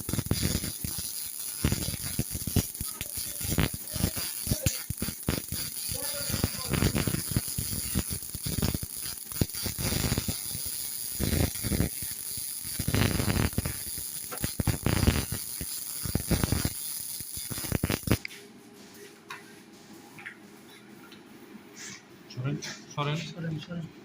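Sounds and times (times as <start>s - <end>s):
welding arc crackling and hissing: 0.0s - 18.3s.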